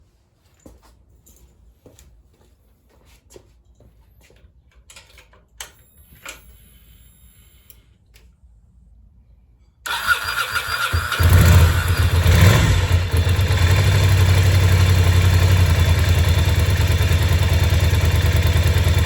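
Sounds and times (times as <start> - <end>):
faint high whine: 5.7 - 8.0.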